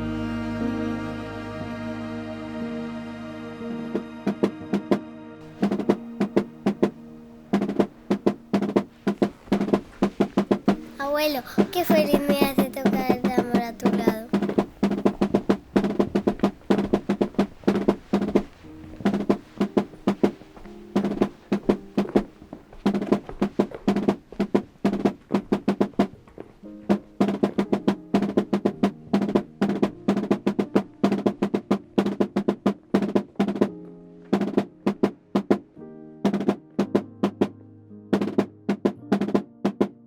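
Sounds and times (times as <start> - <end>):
drums beaten fast with rolls: 4.3 - 7.0, 7.6 - 26.1, 26.9 - 33.8, 34.4 - 35.7, 38.2 - 40.0.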